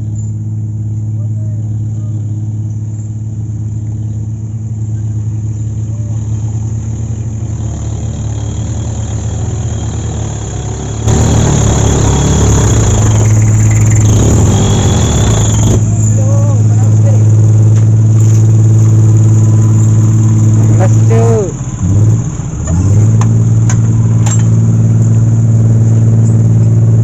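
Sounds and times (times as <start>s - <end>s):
dump truck engine humming: 0.0s - 27.0s
broad rushing noise: 11.0s - 16.0s.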